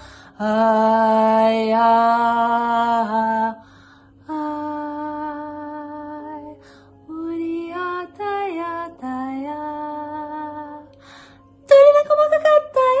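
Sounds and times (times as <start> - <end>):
breaths: 0.0 - 0.4, 3.6 - 4.2, 6.6 - 7.0, 10.9 - 11.6.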